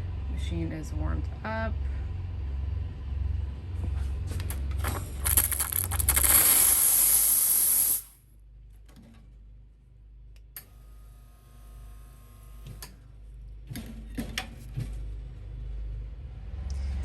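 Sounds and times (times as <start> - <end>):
espresso machine hissing: 4.8 - 8.1.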